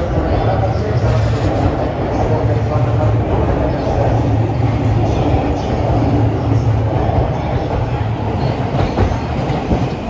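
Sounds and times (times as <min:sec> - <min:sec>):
electric train rumbling: 0:00.0 - 0:10.0
train wheel knocks: 0:08.5 - 0:10.0.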